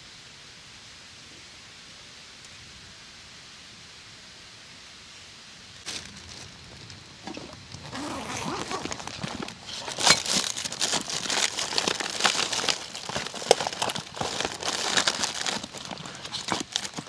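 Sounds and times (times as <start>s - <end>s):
crinkling and rustling: 5.8s - 17.0s
clicks and small knocks: 5.9s - 17.0s.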